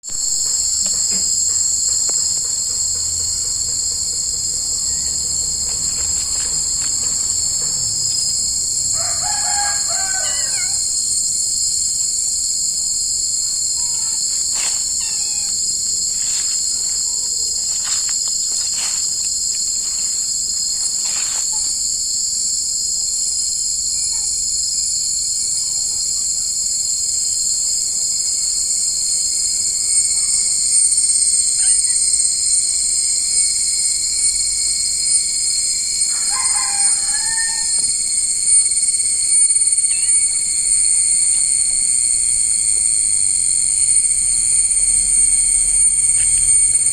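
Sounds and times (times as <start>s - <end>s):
insects singing chorus: 0.0s - 46.9s
animal calls: 13.8s - 15.6s.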